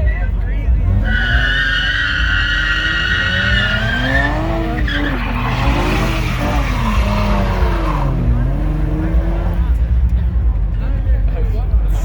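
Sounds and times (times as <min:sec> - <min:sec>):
car engine revving: 0:00.4 - 0:11.8
high tyre squeal: 0:01.0 - 0:08.4.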